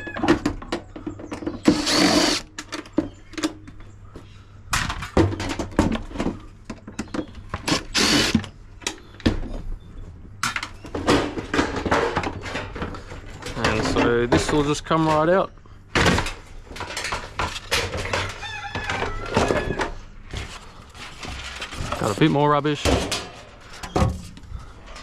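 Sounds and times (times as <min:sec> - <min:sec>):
cordless drill driving screws: 0:01.6 - 0:02.5, 0:07.7 - 0:08.4
sheet-metal parts clattering: 0:10.5 - 0:15.4, 0:16.0 - 0:25.0.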